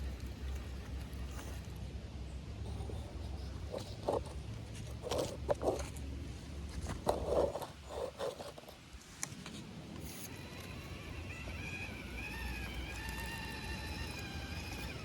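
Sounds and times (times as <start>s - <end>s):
rc car crunching over rocks: 0.0s - 1.8s, 3.2s - 6.1s, 6.7s - 8.8s, 10.0s - 15.0s
low steady rumble: 0.0s - 15.0s.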